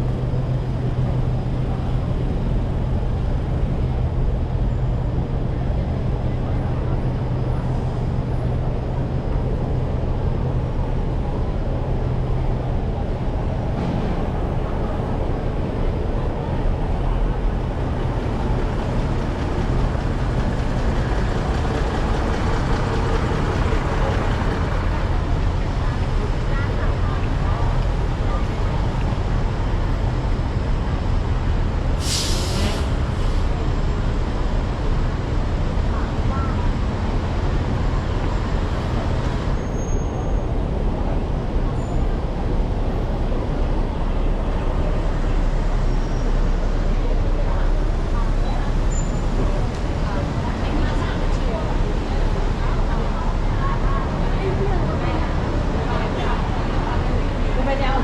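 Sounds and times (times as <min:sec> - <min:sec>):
road traffic noise: 0:00.0 - 0:58.0
hiss of air: 0:32.0 - 0:33.4.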